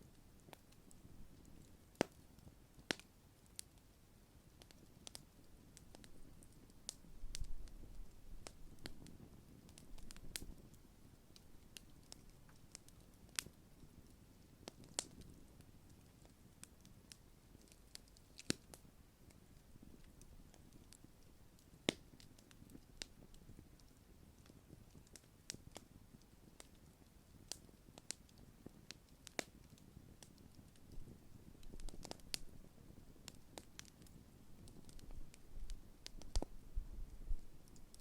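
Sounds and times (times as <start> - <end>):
campfire crackling and popping: 0.0 - 38.0
low rush of flames: 27.4 - 38.0.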